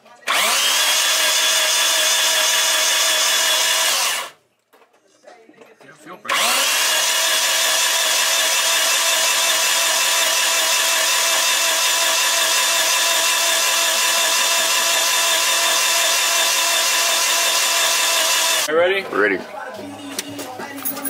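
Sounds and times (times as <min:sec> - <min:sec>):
electric drill running under load: 0:00.3 - 0:04.4, 0:06.3 - 0:18.7.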